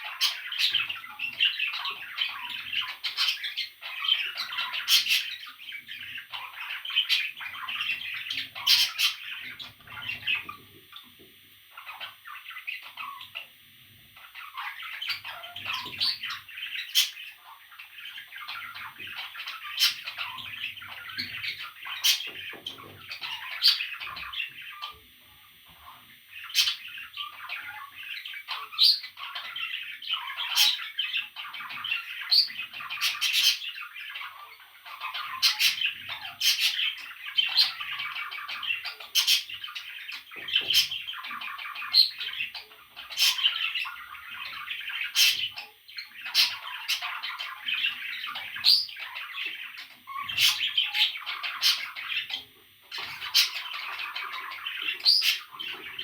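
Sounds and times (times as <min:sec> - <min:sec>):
parrot chicks chirping and squawking: 0:00.0 - 0:56.0.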